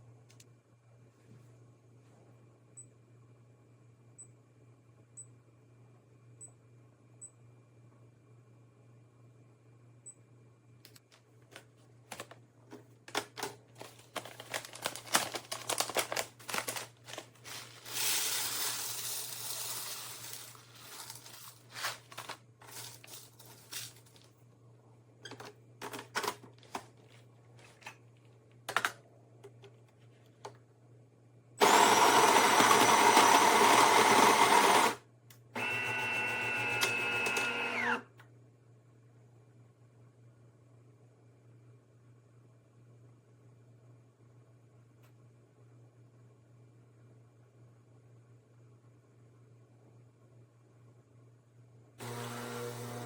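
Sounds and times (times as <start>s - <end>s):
clicks and knocks of parts: 10.9s - 18.1s
coffee grinder running: 13.8s - 23.9s, 31.6s - 35.0s, 52.0s - 53.0s
pump hum: 52.0s - 53.0s.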